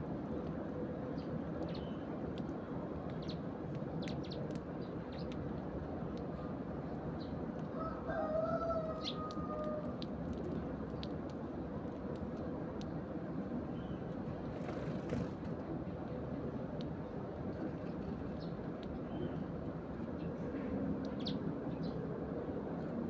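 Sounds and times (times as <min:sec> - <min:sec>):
rooster crowing: 0:07.7 - 0:09.9
sparrows chirping: 0:21.1 - 0:22.0.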